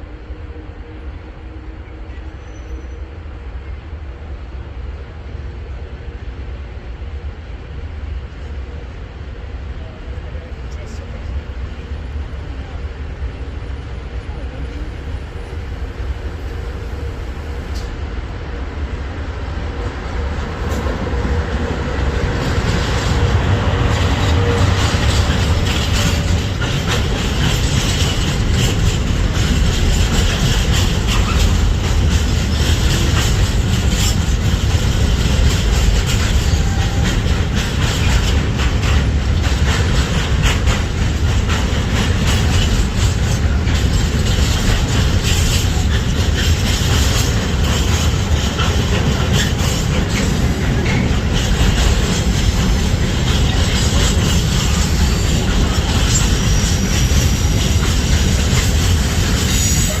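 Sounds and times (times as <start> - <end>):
freight train wheels rumbling: 0.0 - 60.0
wheels clicking over rail joints: 20.4 - 60.0.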